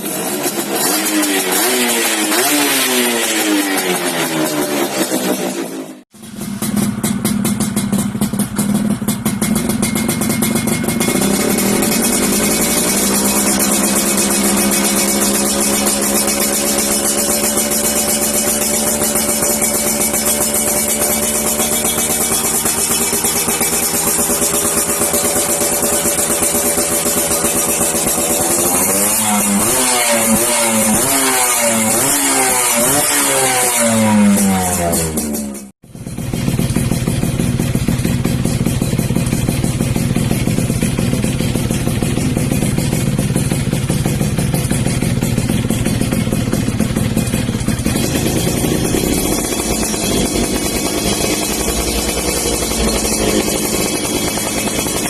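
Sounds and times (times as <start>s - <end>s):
two-stroke engine running: 0.0s - 55.0s
exhaust crackling: 6.3s - 31.4s, 38.6s - 55.0s.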